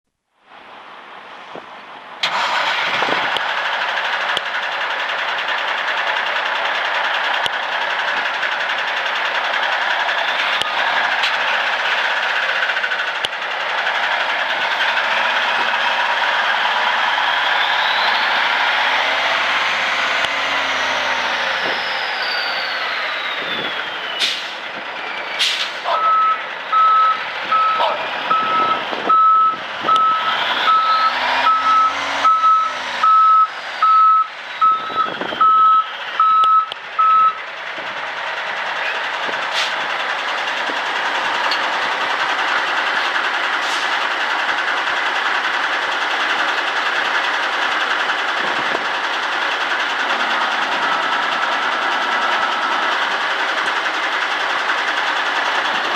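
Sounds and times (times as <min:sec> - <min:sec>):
truck engine running: 0:02.2 - 0:55.9
backup alarm beeping: 0:25.9 - 0:37.4.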